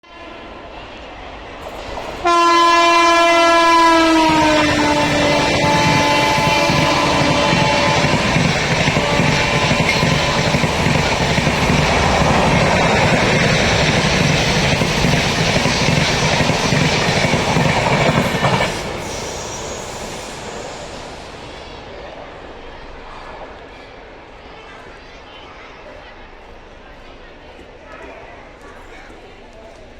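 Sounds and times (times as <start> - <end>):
train horn: 2.2 - 13.8
train wheels clattering on rails: 3.4 - 20.8.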